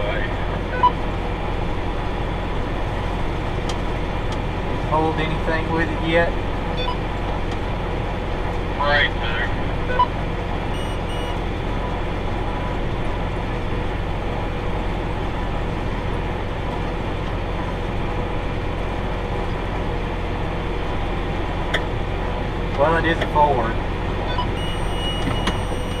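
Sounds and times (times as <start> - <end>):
tractor engine hum: 0.0 - 26.0
short high beeps: 10.8 - 11.4, 24.3 - 26.0.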